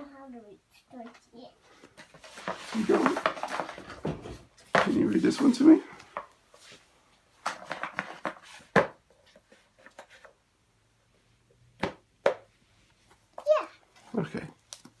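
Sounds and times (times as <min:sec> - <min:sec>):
book pages rustling: 0:01.8 - 0:05.5.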